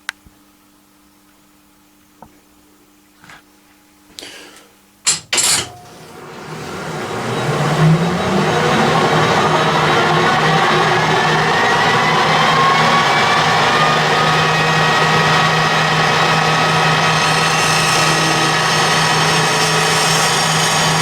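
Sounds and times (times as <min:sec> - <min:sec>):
drill bit whining in metal: 0:05.1 - 0:21.0
lathe motor hum: 0:05.1 - 0:21.0.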